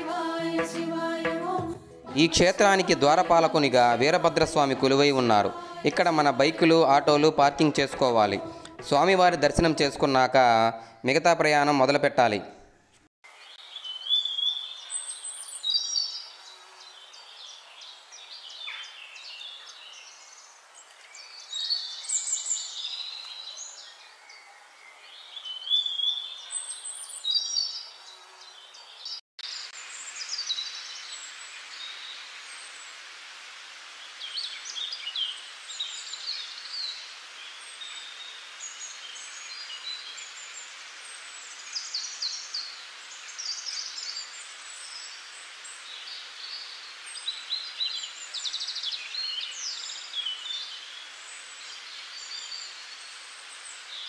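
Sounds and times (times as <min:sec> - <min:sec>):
steady hiss: 0:00.0 - 0:10.5, 0:12.9 - 0:28.2, 0:29.4 - 0:54.0
small birds chirping: 0:13.3 - 0:54.0.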